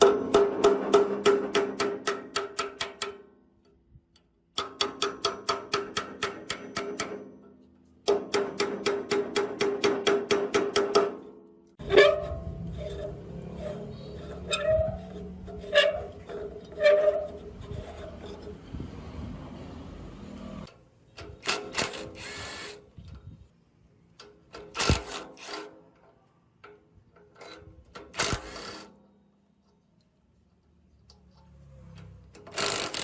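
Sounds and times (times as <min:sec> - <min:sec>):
metal parts clicking and knocking: 0:29.6 - 0:33.0.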